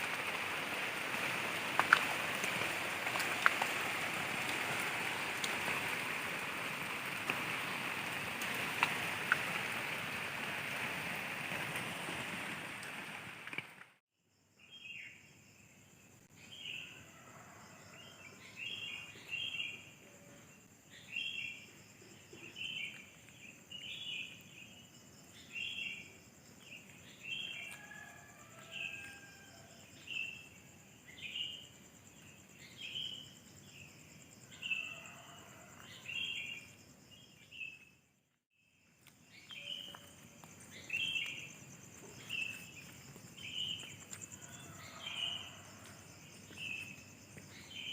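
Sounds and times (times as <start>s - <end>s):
insects trilling: 0.0s - 13.6s, 14.3s - 47.9s
heavy rain falling: 0.0s - 14.0s.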